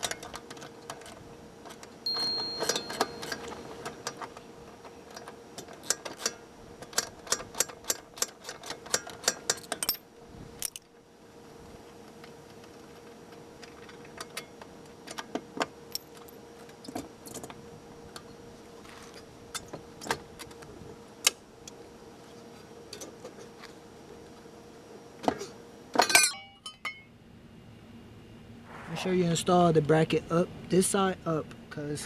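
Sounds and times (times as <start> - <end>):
faint steady hum: 0.0 - 32.0
metal tools clinking: 2.1 - 3.6
metal clanks: 2.1 - 4.3.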